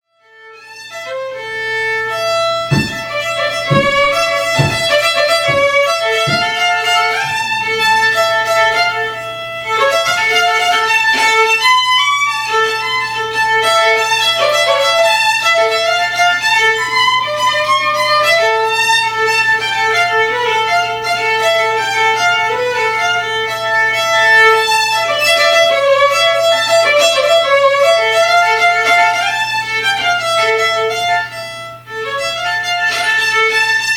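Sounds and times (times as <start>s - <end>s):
solo violin melody: 0.2s - 33.9s
low thumps: 2.7s - 7.5s.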